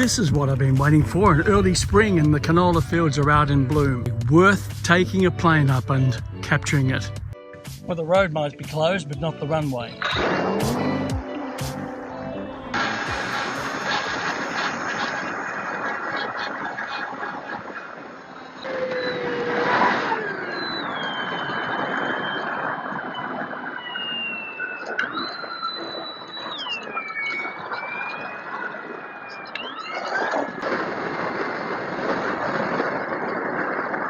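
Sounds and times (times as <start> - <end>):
wind noise on microphone: 0.0 - 5.5, 12.7 - 29.2, 30.0 - 34.0
model plane motor whining: 18.7 - 22.4.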